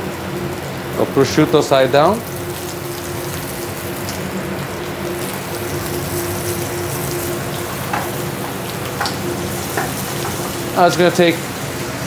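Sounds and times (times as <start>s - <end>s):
meat sizzling in a pan: 0.0s - 12.0s
steady hum: 0.0s - 12.0s.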